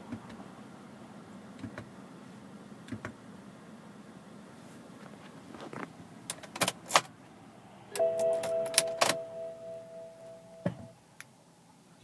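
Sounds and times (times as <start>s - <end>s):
electronic warning chime: 7.9s - 10.7s.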